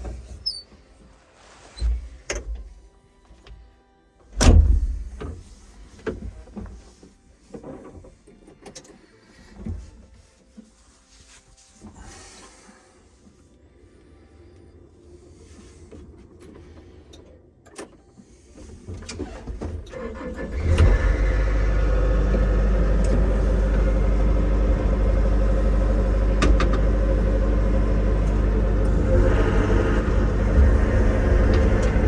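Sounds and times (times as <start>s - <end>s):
engine starting and running: 14.8s - 32.0s.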